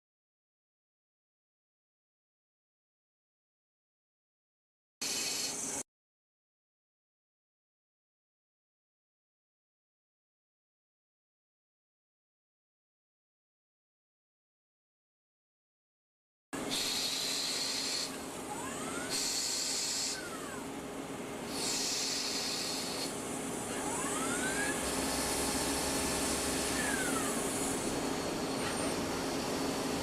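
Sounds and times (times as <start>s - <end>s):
high hiss: 5.0s - 5.8s, 16.7s - 18.2s, 19.0s - 20.4s, 21.5s - 23.4s
lathe machine hum: 16.6s - 30.0s
spindle whine rising and falling: 23.3s - 30.0s.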